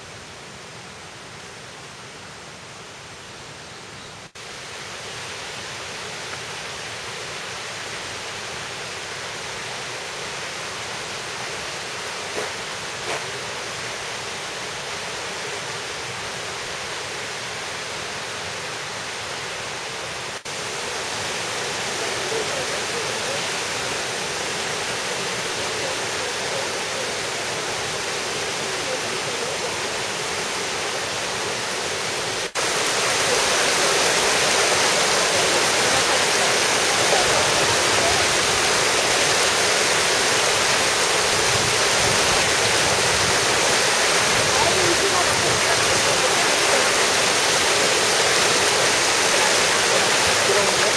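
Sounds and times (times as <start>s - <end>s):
waterfall and stream rushing: 0.0s - 50.9s.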